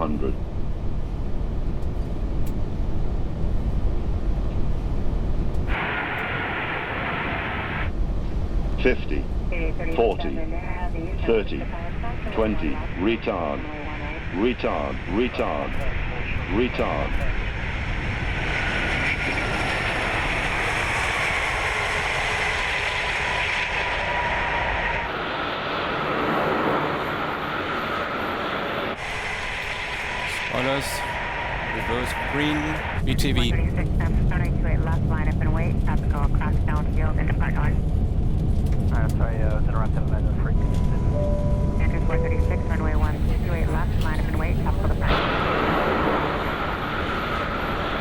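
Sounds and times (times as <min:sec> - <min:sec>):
cockpit engine and airflow rumble: 0:00.0 - 0:48.0
radio hiss: 0:05.7 - 0:07.9, 0:29.0 - 0:35.2.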